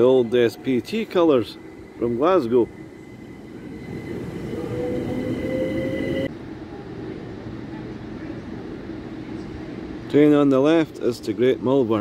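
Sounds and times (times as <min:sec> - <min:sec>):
electric train whine rising in pitch: 0:00.0 - 0:06.3
train running noise: 0:00.0 - 0:11.1.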